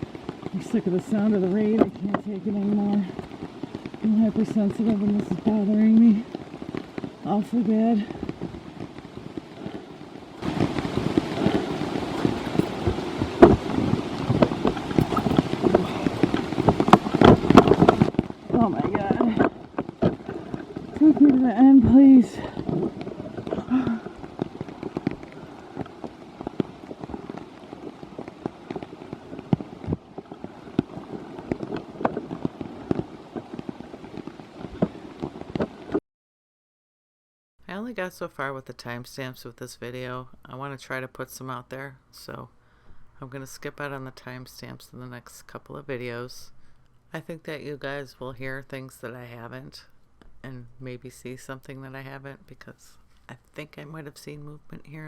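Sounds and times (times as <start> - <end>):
rain falling: 0.0 - 36.0.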